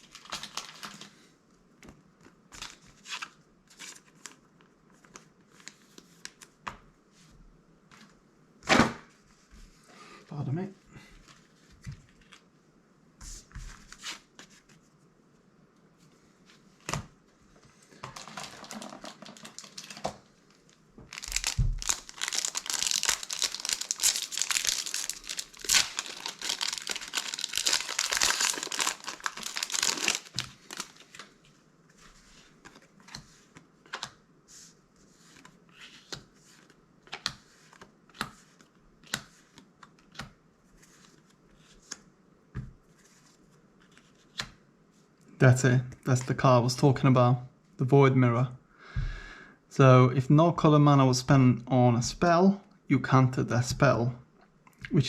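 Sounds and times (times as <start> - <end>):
foil wrapper crinkling and tearing: 0.0 - 1.1, 18.0 - 20.1, 21.1 - 31.3.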